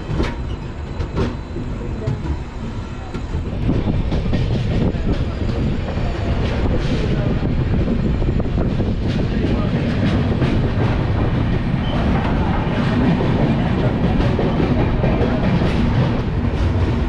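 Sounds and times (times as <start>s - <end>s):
train wheels clacking over rail joints: 0.0s - 17.0s.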